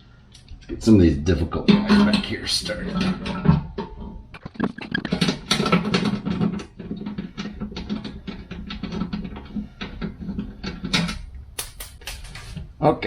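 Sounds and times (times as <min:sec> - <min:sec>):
hand tools clicking on bolts: 0:05.5 - 0:12.4.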